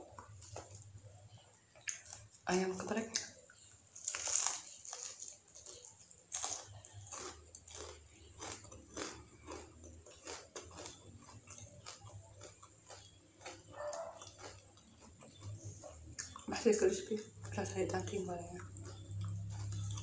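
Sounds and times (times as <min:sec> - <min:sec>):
crunchy chewing: 0:00.0 - 0:02.5, 0:03.1 - 0:20.0
crunching bite: 0:04.0 - 0:16.5.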